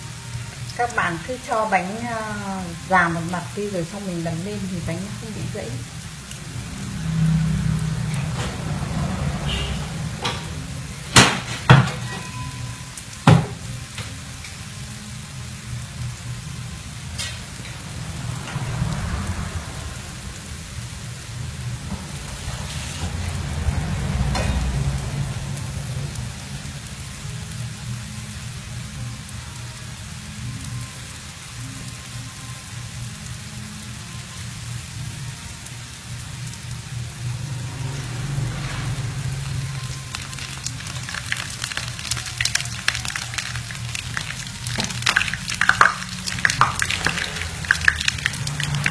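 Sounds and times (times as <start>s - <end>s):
food sizzling in hot oil: 0.0s - 48.9s
low rumble: 16.4s - 27.3s.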